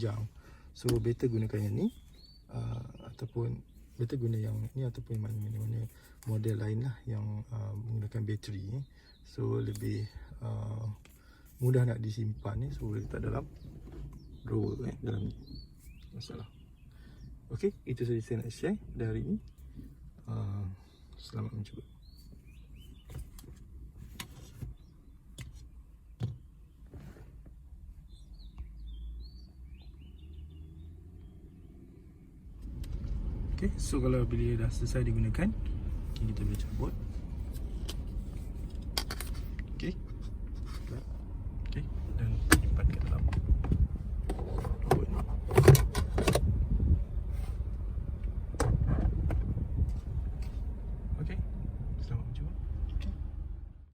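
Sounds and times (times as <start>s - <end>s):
birds chirping: 0.0s - 23.6s, 24.2s - 27.1s, 27.9s - 32.6s
low rumble: 32.6s - 53.9s
handling clicks and knocks: 42.4s - 46.5s.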